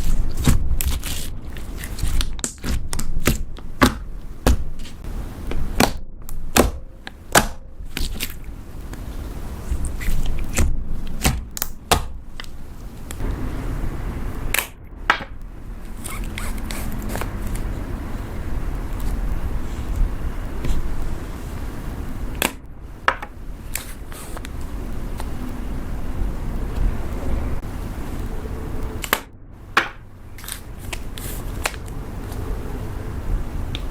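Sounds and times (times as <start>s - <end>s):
low rumble: 12.2s - 33.9s.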